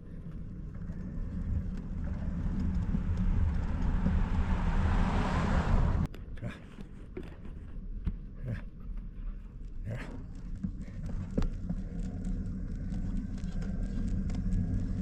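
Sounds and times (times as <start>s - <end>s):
vehicle motor humming: 0.0s - 6.1s.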